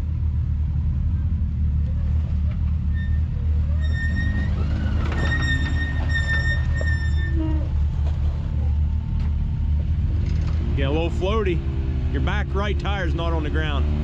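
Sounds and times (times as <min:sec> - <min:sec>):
utv engine low rumble: 0:00.0 - 0:14.0
high-pitched squeal: 0:02.8 - 0:07.9.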